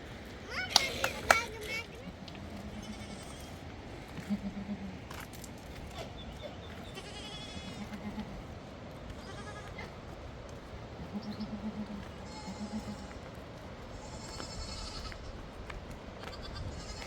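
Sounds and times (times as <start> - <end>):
livestock bleating: 2.4 - 3.6, 4.2 - 5.0, 6.8 - 8.5, 9.1 - 10.0, 11.0 - 13.3, 13.9 - 15.4, 16.2 - 17.0.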